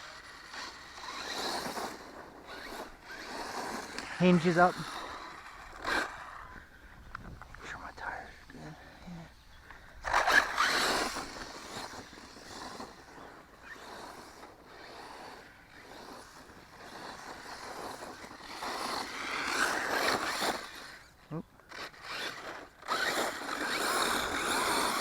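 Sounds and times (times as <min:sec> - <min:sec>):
rc truck driving past: 0:00.0 - 0:07.4, 0:08.4 - 0:25.0.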